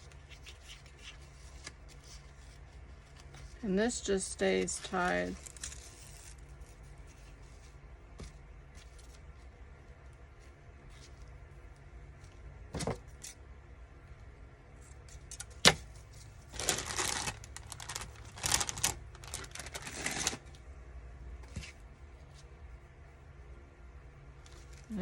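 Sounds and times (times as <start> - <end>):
paper rustling: 0.0 - 3.6, 15.0 - 20.6.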